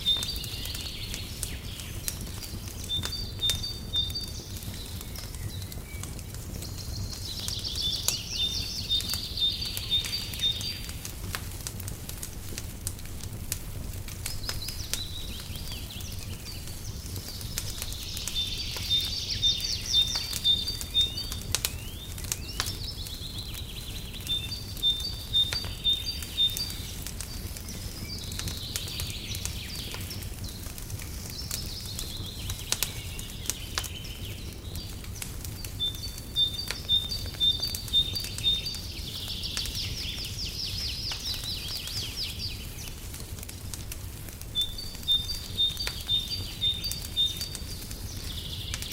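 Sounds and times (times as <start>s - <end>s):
songbirds calling: 0.0s - 48.9s
wood fire crackling: 0.0s - 48.9s.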